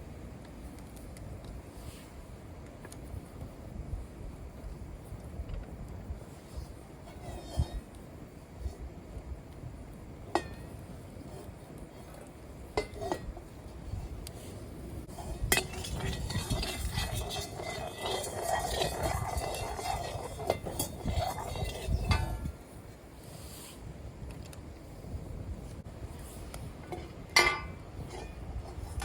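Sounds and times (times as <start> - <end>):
metal utensil clinking on cookware: 15.2 - 22.5, 26.9 - 29.0.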